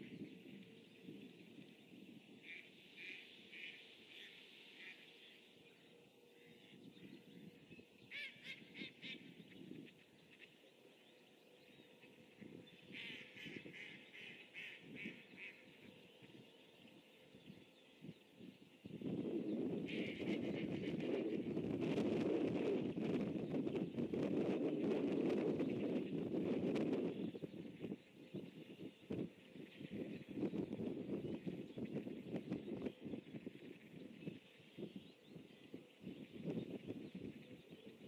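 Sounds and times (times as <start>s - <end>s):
faint bird calls: 0.0s - 21.6s
low steady background hiss: 0.0s - 22.2s.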